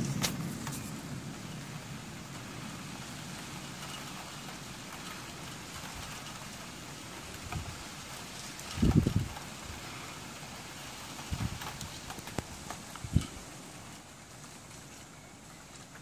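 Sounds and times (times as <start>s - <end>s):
low thunder rumble: 0.0s - 6.4s, 8.7s - 9.4s
steady rain hissing: 0.0s - 16.0s.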